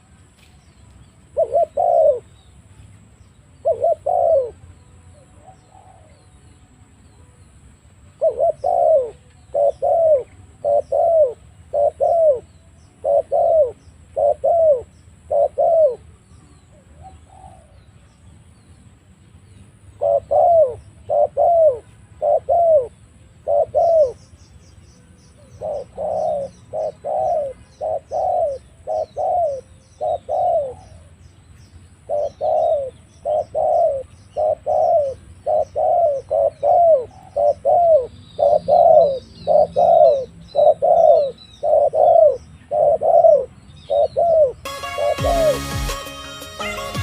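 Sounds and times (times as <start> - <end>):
small birds chirping: 0.0 - 46.0
doves cooing: 1.3 - 2.4, 3.6 - 4.6, 8.2 - 16.1, 16.7 - 17.8, 20.0 - 24.2, 25.4 - 31.2, 32.0 - 45.6
music: 44.7 - 47.0.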